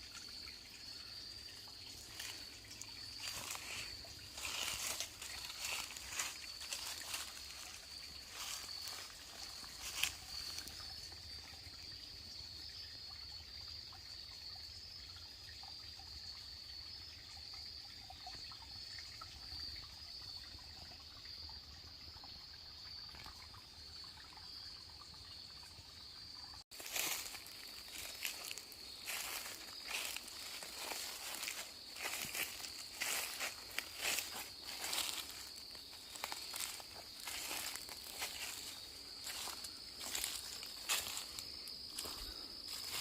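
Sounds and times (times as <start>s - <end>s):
faint trickling water: 0.0s - 43.0s
high-pitched insect trill: 0.0s - 43.0s
rustling crunching footsteps: 3.2s - 10.7s, 26.7s - 43.0s.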